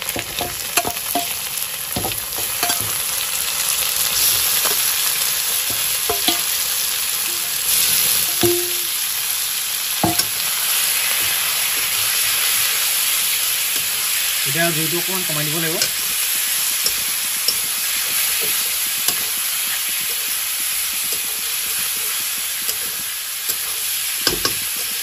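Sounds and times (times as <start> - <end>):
liver and onions sizzling in oil: 0.0 - 25.0
spatula stirring: 0.1 - 3.3, 4.0 - 9.1, 9.9 - 25.0
metal clinks against pan: 0.3 - 1.4, 2.0 - 3.0, 5.7 - 6.6, 8.2 - 8.9, 10.0 - 10.4, 23.5 - 24.9.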